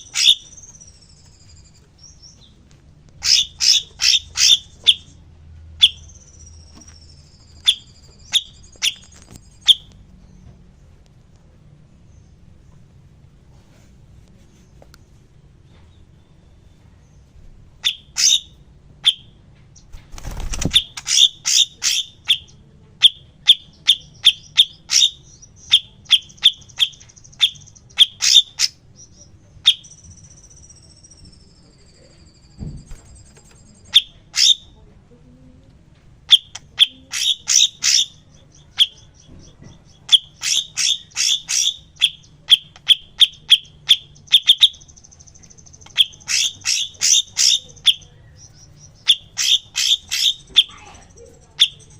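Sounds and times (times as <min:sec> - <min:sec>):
bird chirping high and sharp: 0:00.0 - 0:02.5, 0:03.2 - 0:05.2, 0:05.8 - 0:09.9, 0:17.8 - 0:19.3, 0:20.2 - 0:31.6, 0:33.8 - 0:34.7, 0:36.3 - 0:51.9
faint wavering trill: 0:29.9 - 0:34.2.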